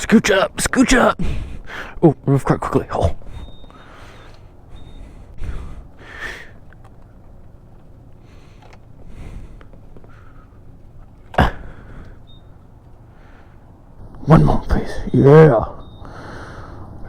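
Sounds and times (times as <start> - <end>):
breathing close to microphone: 1.2 - 2.0, 3.2 - 6.7, 8.2 - 10.8, 11.4 - 13.8, 15.8 - 17.0.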